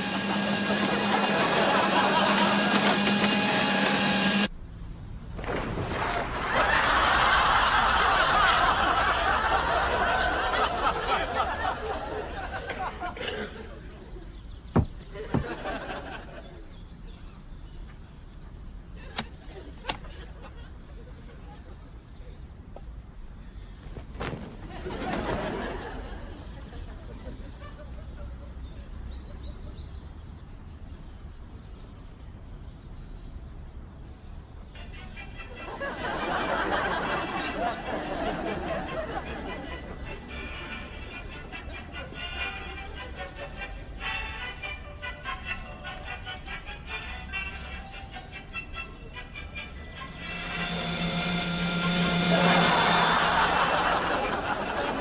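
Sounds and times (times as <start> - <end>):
studio audience laughing: 0.0 - 4.5, 6.4 - 14.1, 15.2 - 16.6, 24.7 - 28.4, 35.0 - 43.8, 50.0 - 55.0.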